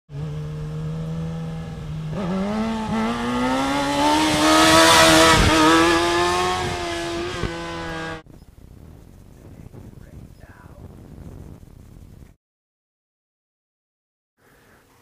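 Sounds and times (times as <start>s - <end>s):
motorcycle engine accelerating: 0.1s - 8.3s
wind noise: 1.5s - 12.4s.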